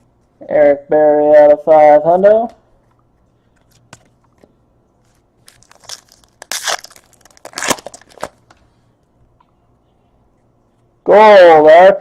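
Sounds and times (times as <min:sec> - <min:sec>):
card pack wrapper tearing: 0:05.4 - 0:08.4.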